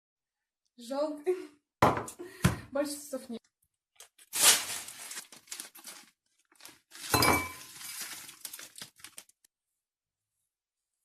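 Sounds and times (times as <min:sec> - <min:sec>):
crinkling and rustling: 0:04.0 - 0:09.5
crockery clattering: 0:07.2 - 0:07.7.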